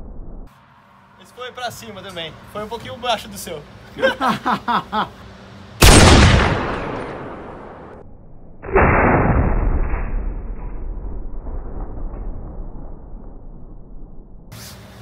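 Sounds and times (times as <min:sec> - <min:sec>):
rifle shots echoing indoors: 0:05.8 - 0:08.0.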